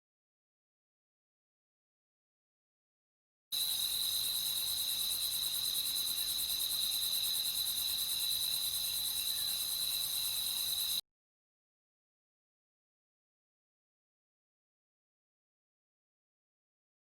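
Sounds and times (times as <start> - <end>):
crickets chirring: 3.6 - 11.0.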